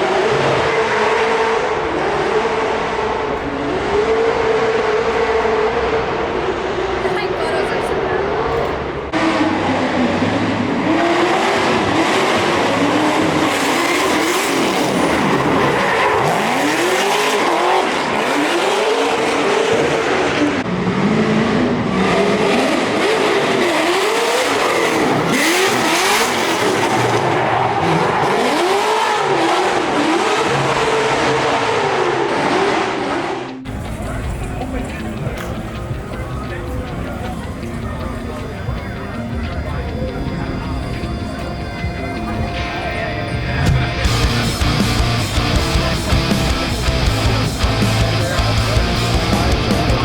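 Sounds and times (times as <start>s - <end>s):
car engines revving: 0.0s - 50.0s.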